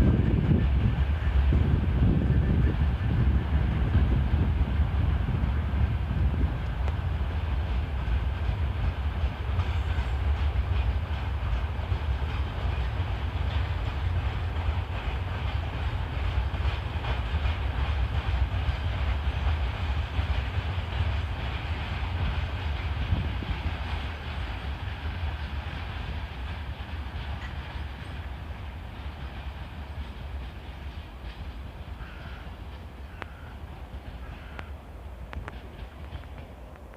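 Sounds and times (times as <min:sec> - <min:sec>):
freight train wagons rolling past: 0:00.0 - 0:36.9.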